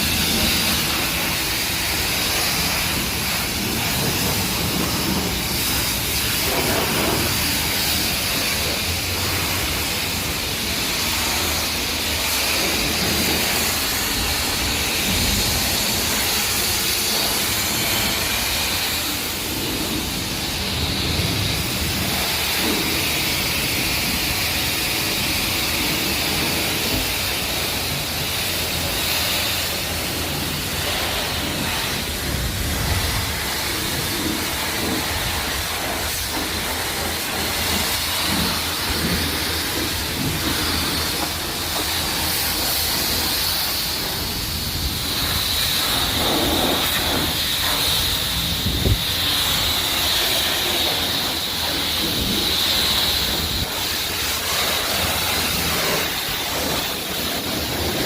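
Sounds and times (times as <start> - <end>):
water spray hissing: 0.0 - 58.0.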